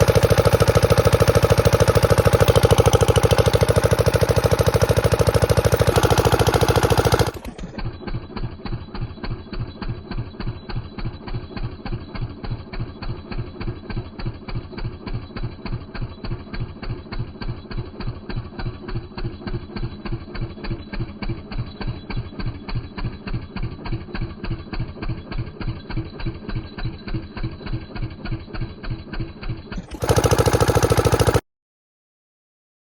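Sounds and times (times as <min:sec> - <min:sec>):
diesel engine idling: 0:00.0 - 0:08.0, 0:29.8 - 0:31.4.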